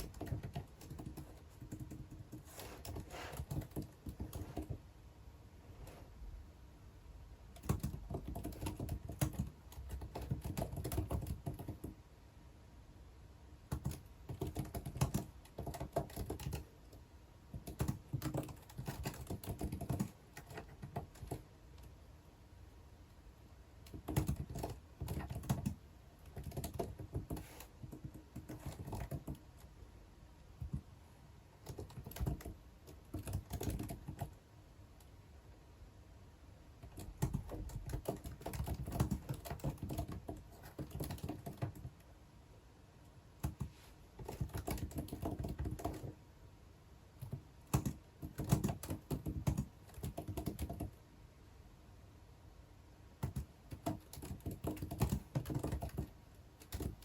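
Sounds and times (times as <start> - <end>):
typing on computer keyboard: 0.0 - 4.8, 7.5 - 12.0, 13.7 - 21.9, 23.8 - 29.7, 30.6 - 30.9, 31.6 - 34.4, 36.8 - 42.1, 43.4 - 46.2, 47.2 - 51.0, 53.2 - 57.0.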